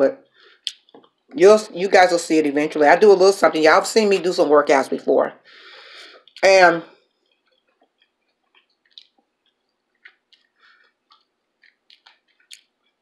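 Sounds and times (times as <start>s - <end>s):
soft chewing: 6.1s - 13.0s
mouth clicks: 11.1s - 12.7s.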